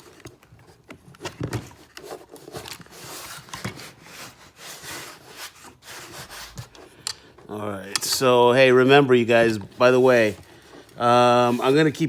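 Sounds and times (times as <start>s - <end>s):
chisel scraping carbon fiber: 11.2s - 12.0s.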